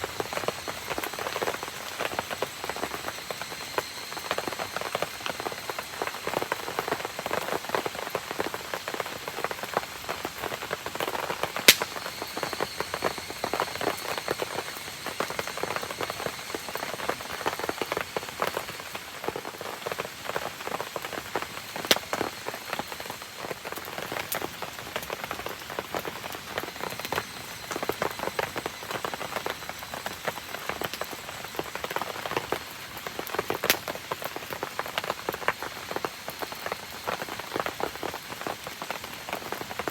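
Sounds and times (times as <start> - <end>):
rain pattering: 0.0 - 39.9
campfire pops: 10.3 - 18.8, 20.4 - 23.1, 33.2 - 34.0.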